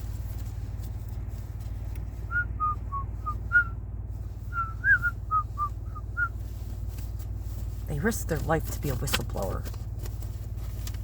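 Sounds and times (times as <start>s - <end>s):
steady low hum: 0.0s - 11.0s
person whistling a tune: 2.3s - 3.8s, 4.5s - 6.4s.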